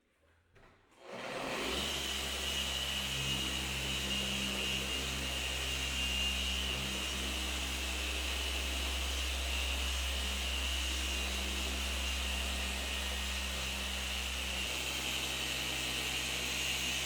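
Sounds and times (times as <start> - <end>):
polishing machine motor whir: 1.3 - 17.0.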